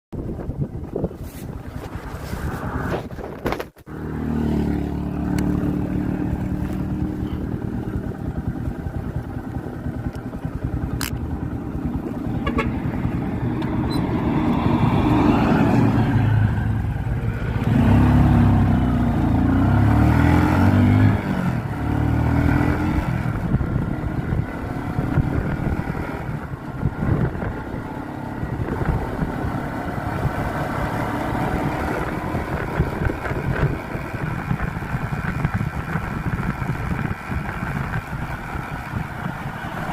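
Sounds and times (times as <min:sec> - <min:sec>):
wind on microphone: 0:00.1 - 0:03.9, 0:11.8 - 0:39.9
motorcycle engine running: 0:00.2 - 0:39.9.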